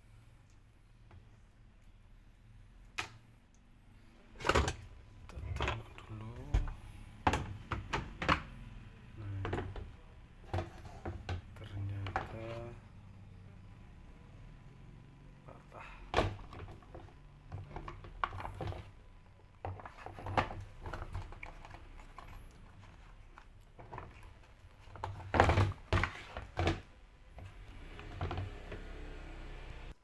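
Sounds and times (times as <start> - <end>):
low steady hum: 0.0 - 30.0
knocks and clatter of tools: 4.4 - 8.5, 9.2 - 12.8, 15.9 - 28.6.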